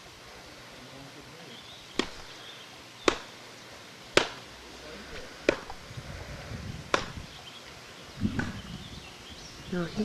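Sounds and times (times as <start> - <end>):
wood chopping cracks: 2.0 - 2.4, 3.0 - 3.3, 4.1 - 4.5, 5.4 - 5.8, 6.9 - 7.2
dull thump: 6.9 - 7.2.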